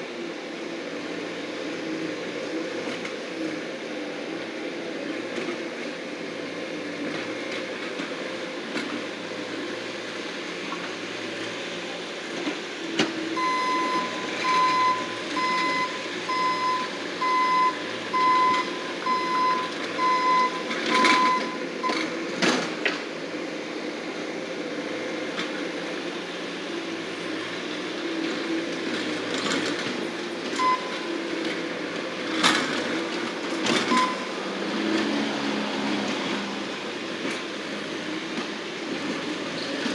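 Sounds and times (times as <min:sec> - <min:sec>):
loader engine running: 0:00.0 - 0:39.9
backup alarm beeping: 0:13.4 - 0:22.0, 0:30.6 - 0:31.2, 0:33.9 - 0:34.4.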